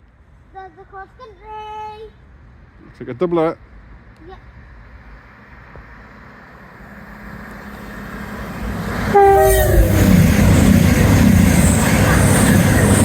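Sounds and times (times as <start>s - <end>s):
train passing at speed: 1.8s - 13.0s
train horn blast: 6.9s - 10.6s.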